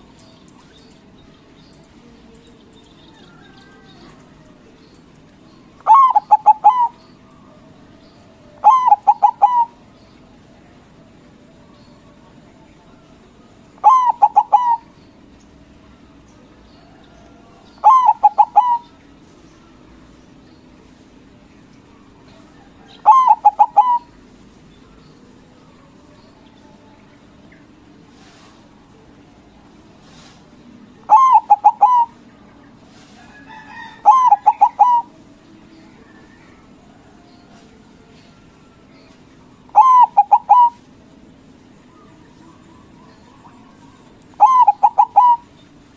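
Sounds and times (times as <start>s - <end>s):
dove cooing: 5.8s - 7.6s, 8.4s - 9.9s, 13.8s - 15.0s, 17.8s - 19.0s, 22.2s - 24.3s, 31.0s - 35.3s, 38.4s - 41.0s, 41.9s - 45.6s.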